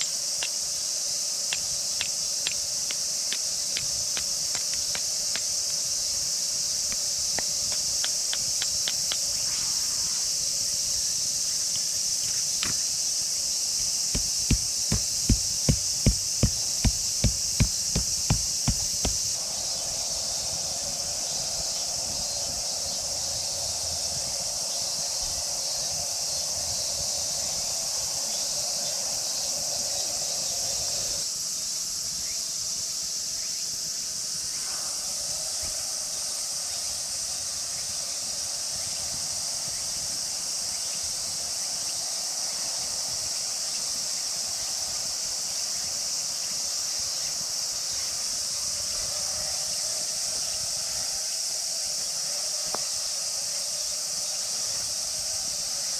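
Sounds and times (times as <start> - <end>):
lower insect buzzing: 0.0 - 20.4
high-pitched insect chorus: 0.0 - 55.9.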